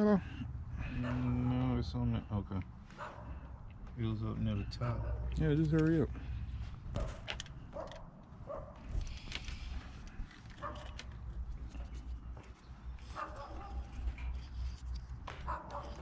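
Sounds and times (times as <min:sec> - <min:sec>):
dog barking: 0:00.9 - 0:01.4, 0:03.0 - 0:03.5, 0:04.8 - 0:05.4, 0:06.9 - 0:08.8, 0:10.6 - 0:11.0, 0:13.1 - 0:13.9, 0:15.4 - 0:16.0.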